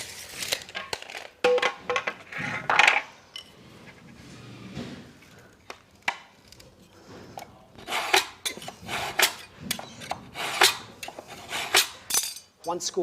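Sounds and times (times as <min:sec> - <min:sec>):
knife scraping board: 0:07.0 - 0:12.0.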